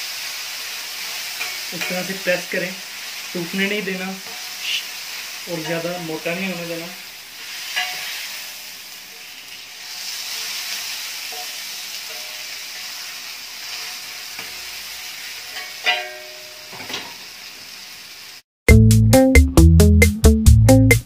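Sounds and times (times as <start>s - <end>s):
meat sizzling on a griddle: 0.0s - 18.4s
metal spatula scraping: 1.3s - 2.3s, 4.2s - 4.7s, 7.4s - 9.2s
spatula clinking on griddle: 1.4s - 2.2s, 7.7s - 8.2s, 11.3s - 12.6s, 15.5s - 17.2s.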